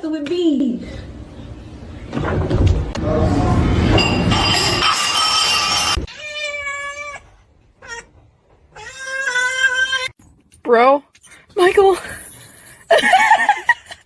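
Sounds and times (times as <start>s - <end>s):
loud noisy commotion: 2.9s - 6.0s
cat meowing: 8.8s - 10.1s.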